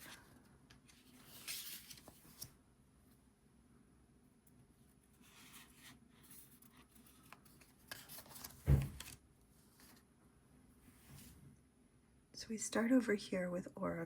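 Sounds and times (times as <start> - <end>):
cards sliding and rustling: 0.8 - 2.6, 5.2 - 9.2.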